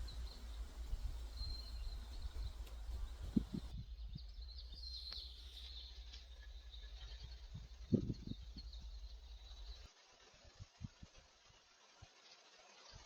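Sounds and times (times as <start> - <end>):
faint bird chirps: 0.0 - 9.9
low wind rumble on microphone: 0.0 - 9.9.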